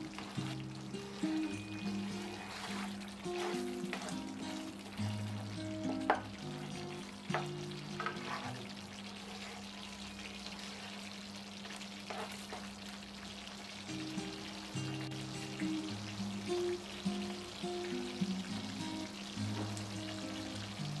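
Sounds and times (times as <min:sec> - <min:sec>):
spatula scraping pan: 0:00.0 - 0:05.3, 0:08.0 - 0:09.7, 0:12.0 - 0:12.7
soft background music: 0:00.0 - 0:11.1, 0:12.4 - 0:21.0
paste sizzling in oil: 0:00.0 - 0:21.0.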